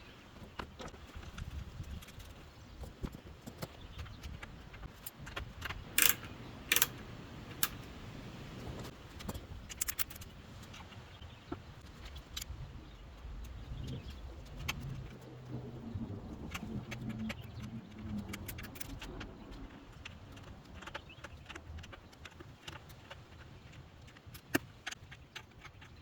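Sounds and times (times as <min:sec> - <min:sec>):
metal hardware clinking and tapping: 0:05.6 - 0:07.8.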